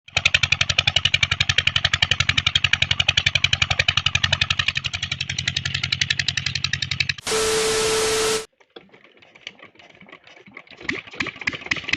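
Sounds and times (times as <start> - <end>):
diesel engine running: 7.2 - 8.5.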